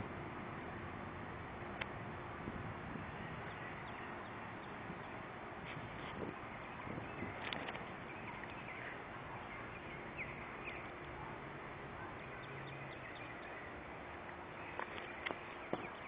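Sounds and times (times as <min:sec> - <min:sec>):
outdoor background rush: 0:00.0 - 0:16.0
high bird chirps: 0:06.3 - 0:11.2, 0:12.0 - 0:13.8.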